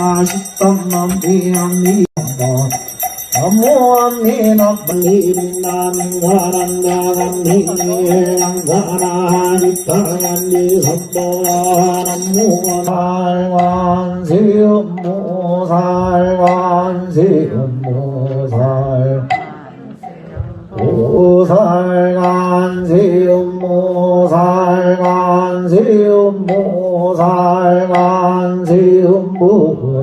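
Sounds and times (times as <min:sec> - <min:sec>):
bell jingling: 0:00.0 - 0:12.9
man chanting: 0:00.0 - 0:30.0.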